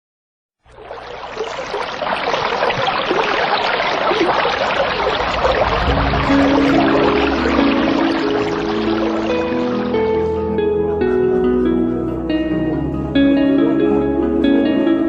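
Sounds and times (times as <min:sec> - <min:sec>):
sea waves washing on shore: 0:00.7 - 0:10.3
music: 0:05.6 - 0:15.0.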